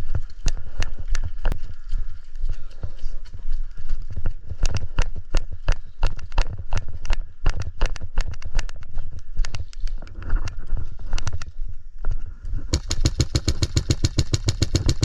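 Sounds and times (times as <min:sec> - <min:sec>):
sharp knocks and clicks: 0:12.7 - 0:15.0.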